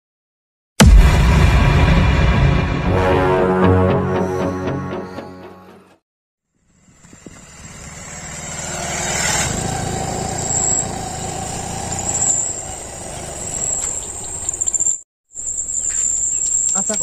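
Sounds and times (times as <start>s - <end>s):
motor vehicle engine running: 6.6s - 15.0s.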